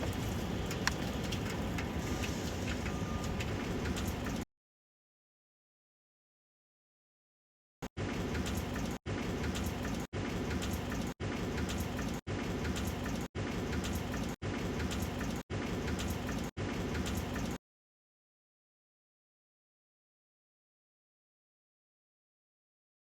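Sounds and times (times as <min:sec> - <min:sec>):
water spray pelting a car body: 0:00.0 - 0:04.4.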